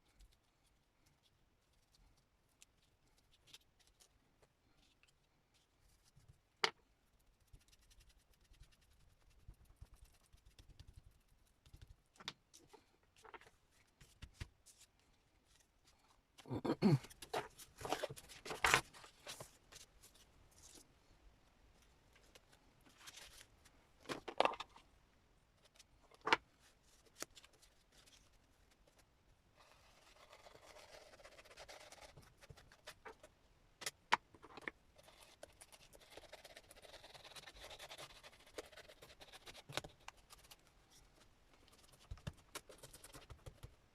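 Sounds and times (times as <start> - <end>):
soft rubbing of paper: 26.6 - 33.3.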